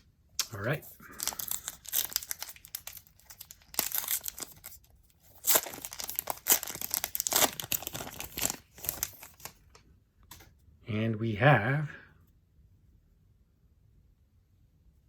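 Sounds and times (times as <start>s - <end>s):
wrapper tearing and crinkling: 0.4s - 9.8s.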